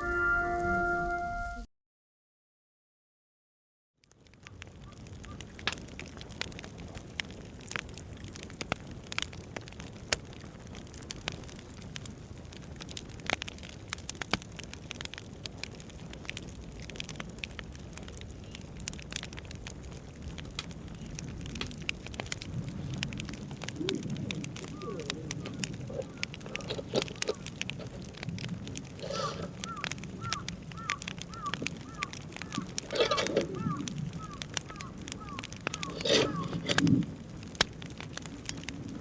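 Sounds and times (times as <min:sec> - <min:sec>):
campfire crackling and popping: 0:04.0 - 0:39.0.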